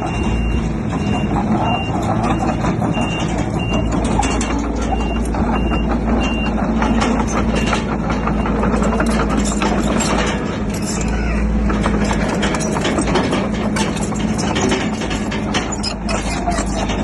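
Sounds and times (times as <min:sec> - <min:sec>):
reversing alarm beeping: 0:00.0 - 0:09.6
diesel engine running: 0:00.0 - 0:17.0
metallic clanks and knocks: 0:00.0 - 0:17.0.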